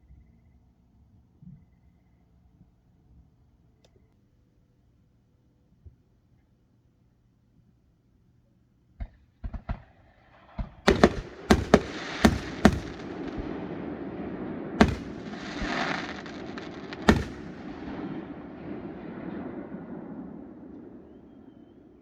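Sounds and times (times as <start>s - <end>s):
small pops: 10.9s - 13.5s, 14.8s - 17.8s
fireworks crackling: 10.9s - 20.4s
fireworks bangs: 10.9s - 21.2s.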